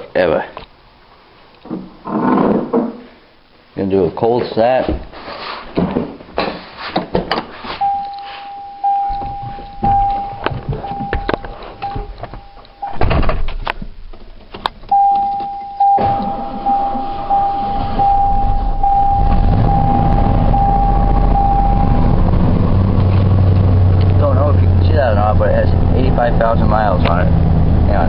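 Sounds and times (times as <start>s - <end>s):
dashboard warning chime beeping: 7.8s - 13.0s, 14.9s - 22.2s.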